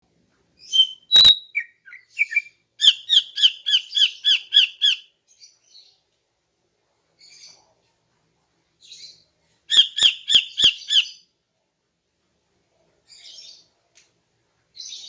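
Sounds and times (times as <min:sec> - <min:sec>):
bird calling: 0:00.7 - 0:05.0.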